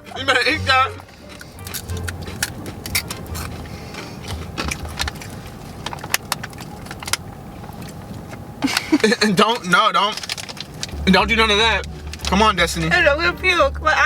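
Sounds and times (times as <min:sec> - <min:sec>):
low steady hum: 0:00.0 - 0:14.0
crunching tortilla chips: 0:01.0 - 0:11.0.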